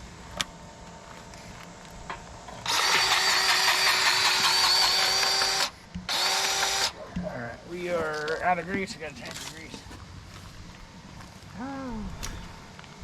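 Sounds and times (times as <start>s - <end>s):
grease gun motor running: 2.6s - 7.0s.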